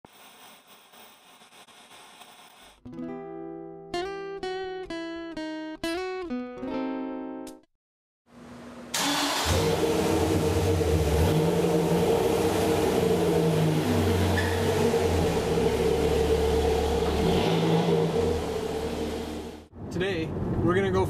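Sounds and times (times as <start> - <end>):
truck engine running: 9.1 - 19.7.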